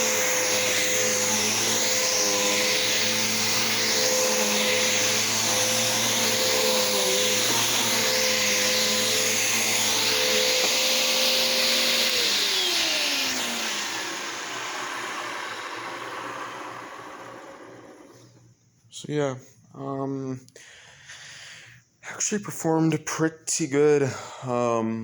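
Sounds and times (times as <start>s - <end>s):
vacuum cleaner running: 0.0s - 18.5s
vacuum motor spinning down: 0.0s - 18.5s.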